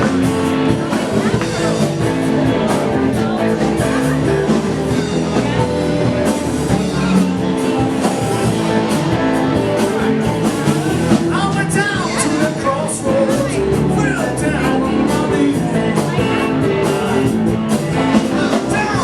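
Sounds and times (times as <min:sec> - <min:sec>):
guitar: 0:00.0 - 0:19.0
live blues band playing: 0:00.0 - 0:19.0.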